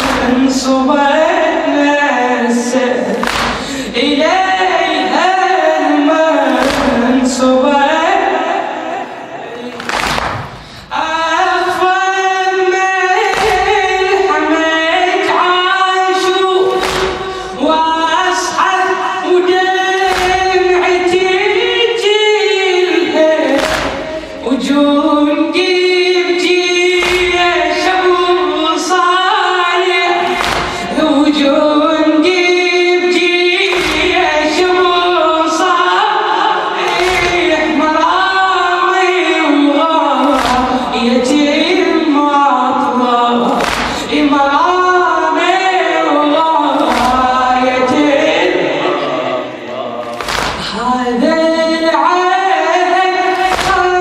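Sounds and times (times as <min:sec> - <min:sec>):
congregation chanting: 0:00.0 - 0:54.0
chest-beating slaps: 0:03.1 - 0:03.8, 0:06.5 - 0:07.1, 0:09.7 - 0:10.8, 0:13.3 - 0:13.8, 0:16.7 - 0:17.4, 0:20.0 - 0:20.6, 0:23.5 - 0:24.4, 0:27.0 - 0:27.5, 0:30.2 - 0:31.0, 0:33.7 - 0:34.3, 0:36.8 - 0:37.5, 0:40.2 - 0:41.0, 0:43.5 - 0:44.1, 0:46.8 - 0:47.4, 0:50.0 - 0:50.7, 0:53.3 - 0:54.0.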